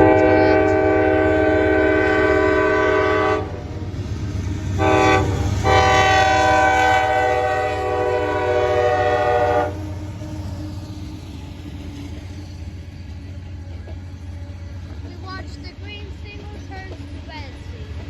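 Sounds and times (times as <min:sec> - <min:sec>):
train air horn blasts: 0:00.0 - 0:03.6, 0:04.8 - 0:10.0.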